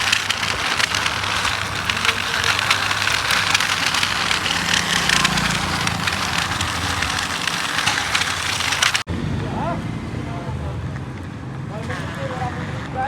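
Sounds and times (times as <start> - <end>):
gravel crunching and rattling: 0.0 - 9.1
toy tractor motor hum: 0.0 - 9.1.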